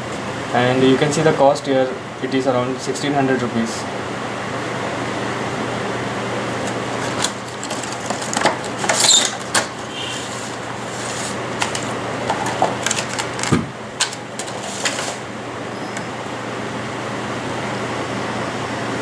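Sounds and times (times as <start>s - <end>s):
packaging rustle: 6.4s - 15.3s
packaging clicks and knocks: 6.6s - 15.3s.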